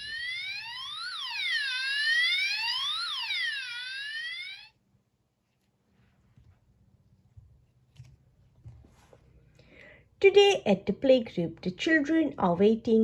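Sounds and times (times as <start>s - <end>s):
electronic police siren wailing: 0.0s - 4.7s.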